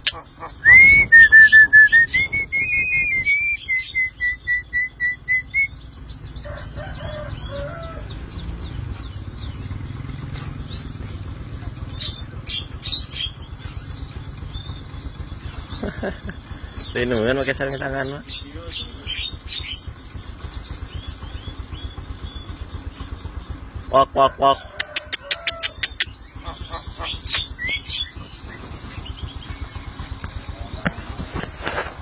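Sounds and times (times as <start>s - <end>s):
bird chirps and clicks: 0.0s - 0.4s, 24.9s - 31.9s
myna whistled notes: 0.6s - 5.7s.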